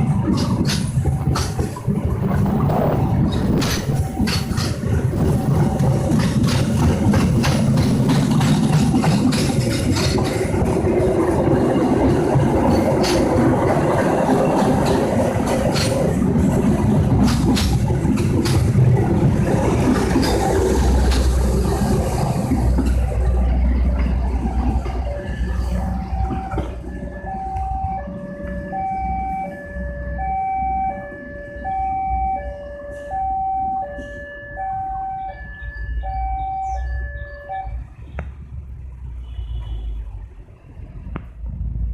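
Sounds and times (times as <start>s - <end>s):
train rumbling past: 0.0s - 41.9s
train wheel clicks: 0.2s - 25.0s
two-tone electronic warning signal: 3.5s - 6.0s, 24.8s - 37.8s.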